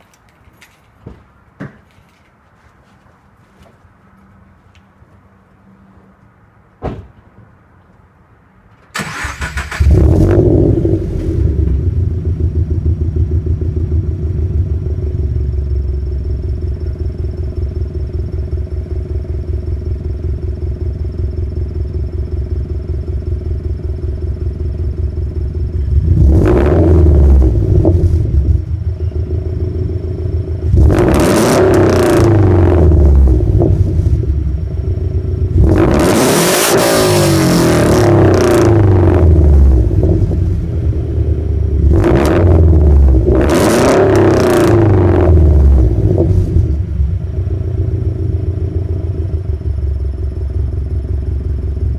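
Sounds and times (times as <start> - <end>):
car engine starting and idling: 8.7 - 51.9
car engine revving: 9.0 - 17.2, 25.2 - 50.1.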